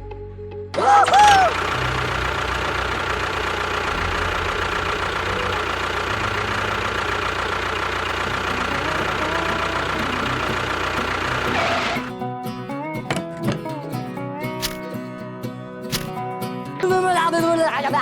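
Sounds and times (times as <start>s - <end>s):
engine chugging: 0.8s - 12.2s, 14.6s - 14.8s.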